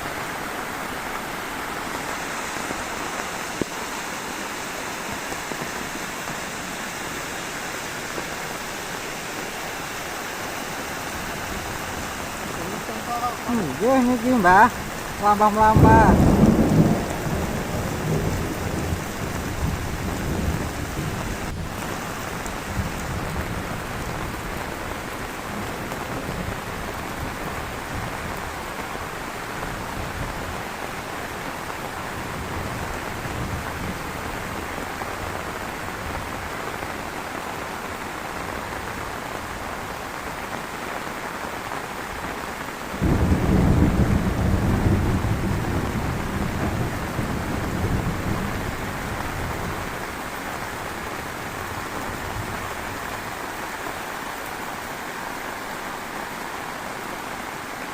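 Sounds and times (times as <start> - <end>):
heavy rain falling: 0.0 - 57.9
low rumble of thunder: 11.5 - 36.5, 43.0 - 50.8.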